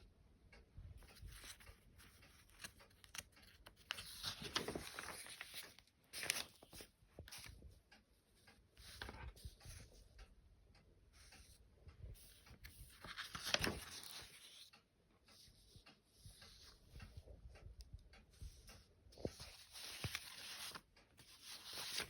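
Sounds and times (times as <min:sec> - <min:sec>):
magazine pages rustling: 0:01.1 - 0:07.6, 0:12.2 - 0:14.7, 0:19.2 - 0:22.0.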